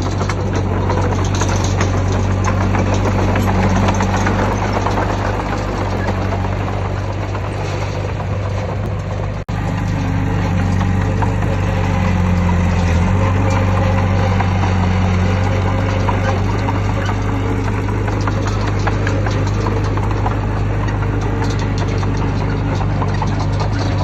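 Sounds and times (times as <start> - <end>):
diesel engine droning: 0.0 - 24.0.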